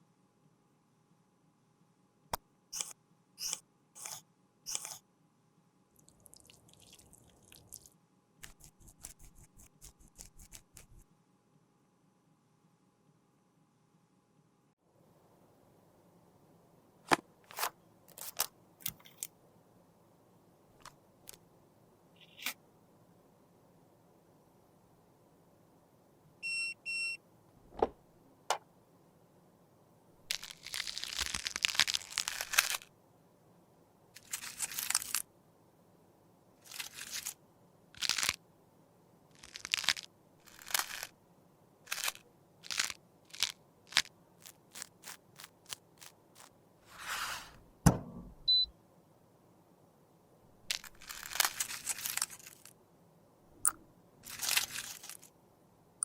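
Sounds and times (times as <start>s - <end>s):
pressed makeup crunching and scraping: 39.4s - 41.1s, 41.9s - 46.5s.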